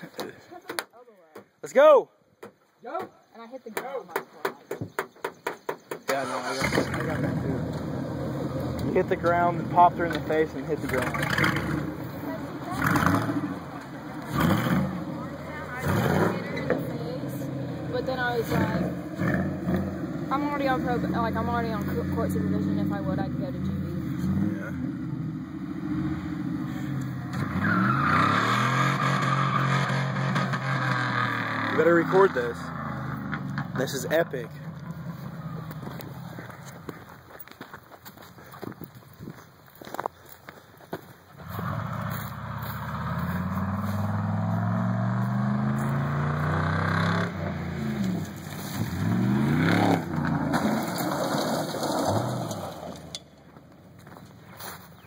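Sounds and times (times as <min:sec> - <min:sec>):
truck engine revving: 0:06.1 - 0:36.5, 0:41.4 - 0:53.2.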